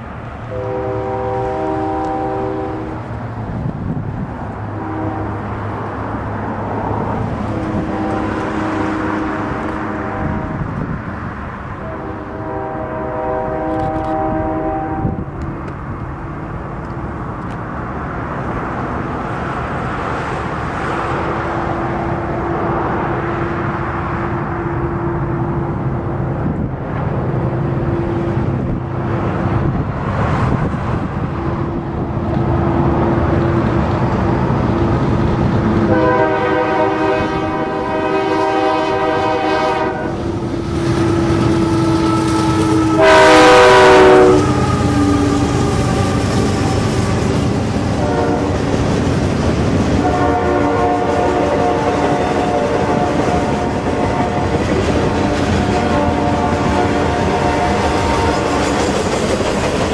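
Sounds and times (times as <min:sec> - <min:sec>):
freight cars rolling on rails: 0:00.0 - 0:59.9
train horn blasts: 0:00.5 - 0:03.1, 0:04.6 - 0:05.7, 0:07.4 - 0:10.8, 0:11.7 - 0:15.4, 0:35.8 - 0:48.8, 0:50.0 - 0:59.0.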